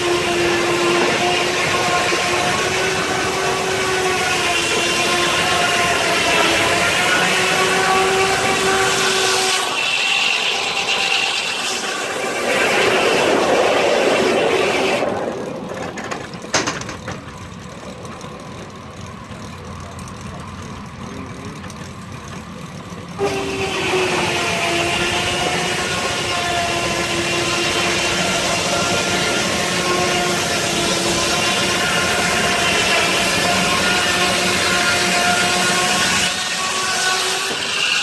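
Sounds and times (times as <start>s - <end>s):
sawmill blade cutting log: 0.0s - 17.9s, 23.2s - 38.0s.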